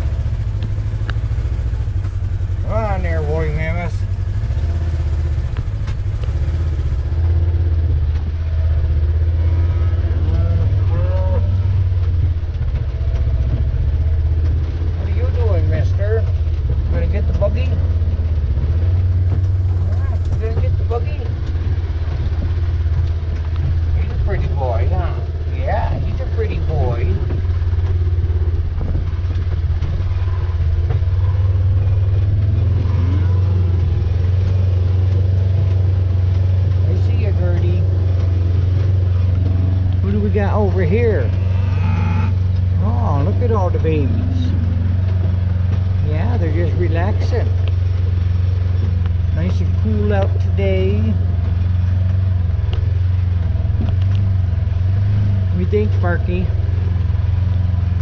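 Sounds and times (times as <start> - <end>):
tractor engine running: 0.0 - 58.0
light clatters: 4.0 - 40.2, 42.3 - 55.8
cow mooing: 9.1 - 12.0, 32.5 - 34.2, 40.9 - 43.4.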